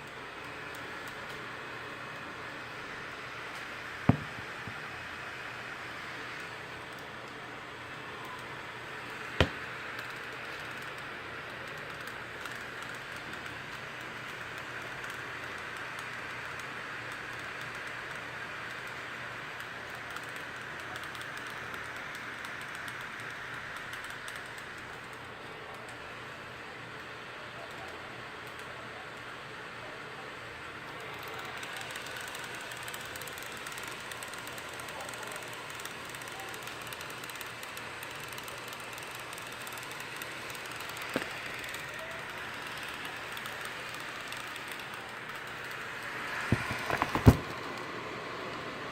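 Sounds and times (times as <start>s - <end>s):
laptop cooling fans whooshing: 0.0s - 48.9s
laptop fans whooshing: 30.6s - 48.9s.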